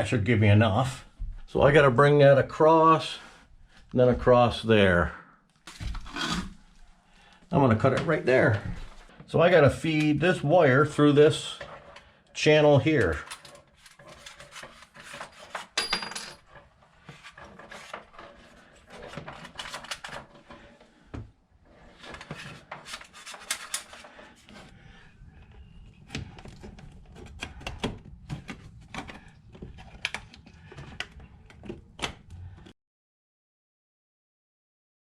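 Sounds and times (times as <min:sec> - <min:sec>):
wire rustling and scraping: 0:21.6 - 0:25.0.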